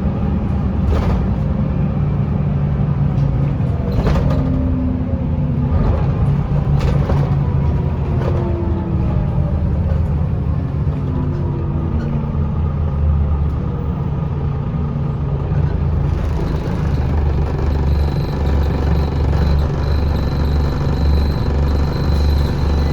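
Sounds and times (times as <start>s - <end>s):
bus driveline whining: 0.0s - 22.9s
diesel bus engine rumble: 0.0s - 22.9s.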